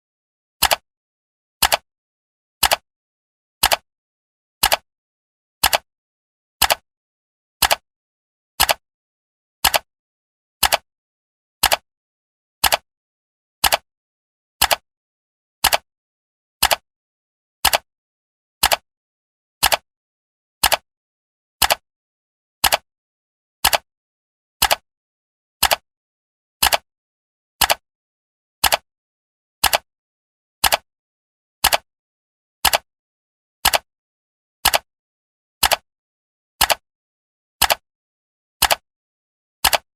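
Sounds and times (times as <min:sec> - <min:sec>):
clock ticking: 0:04.6 - 0:04.8, 0:07.6 - 0:07.8, 0:12.6 - 0:12.8, 0:17.6 - 0:17.8, 0:19.6 - 0:19.8, 0:25.6 - 0:25.8, 0:26.6 - 0:26.8, 0:28.6 - 0:28.8, 0:29.6 - 0:29.8, 0:31.6 - 0:31.8, 0:35.6 - 0:35.8, 0:37.6 - 0:37.8, 0:38.6 - 0:38.8, 0:39.6 - 0:39.9.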